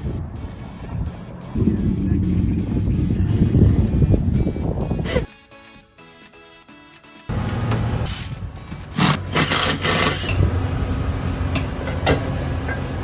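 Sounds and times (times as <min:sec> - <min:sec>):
engine running with mechanical rattle: 0:07.3 - 0:13.0.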